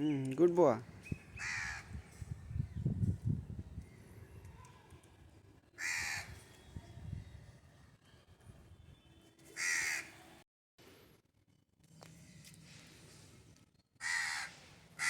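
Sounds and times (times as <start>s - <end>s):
young bird harsh rasping calls: 1.4s - 1.9s.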